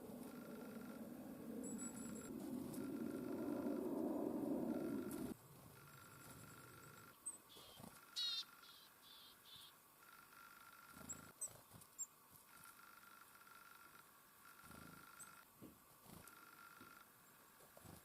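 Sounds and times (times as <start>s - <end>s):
bird trill: 0.0s - 5.3s, 5.9s - 10.3s
songbirds chirping: 0.0s - 16.0s.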